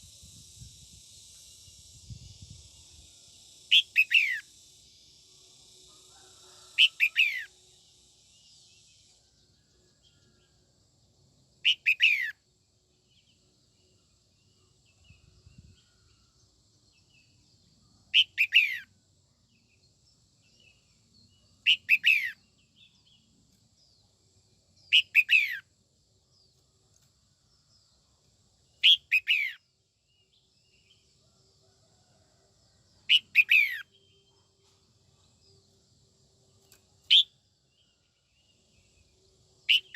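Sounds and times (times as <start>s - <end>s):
bird singing whistled notes: 0.0s - 5.4s, 6.5s - 7.6s, 11.6s - 12.4s, 14.5s - 24.0s, 24.7s - 25.7s, 28.7s - 31.0s, 33.0s - 35.8s, 37.0s - 39.9s.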